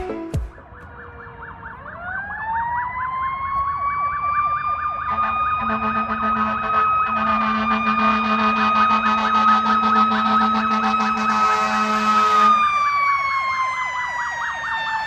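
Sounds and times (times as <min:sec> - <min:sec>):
siren wailing: 0:00.1 - 0:15.0
siren yelping rapidly: 0:00.4 - 0:15.0
low horn: 0:05.1 - 0:12.6.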